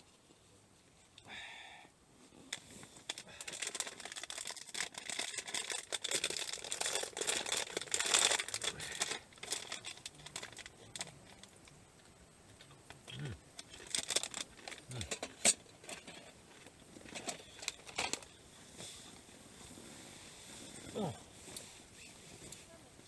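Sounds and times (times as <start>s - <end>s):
rustling and crinkling: 0.0s - 1.2s, 2.2s - 23.0s.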